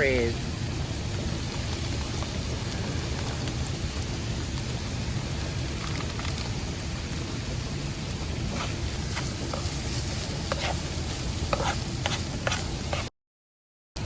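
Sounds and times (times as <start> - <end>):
food sizzling in a pan: 0.0 - 13.1
utensil scraping a pan: 8.5 - 13.1.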